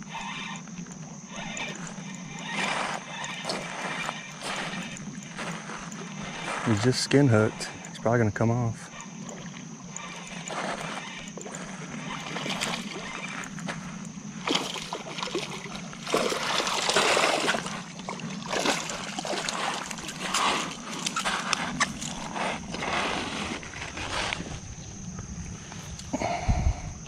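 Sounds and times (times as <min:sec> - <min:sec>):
fish splashing in water: 0:09.2 - 0:13.5, 0:14.4 - 0:24.2.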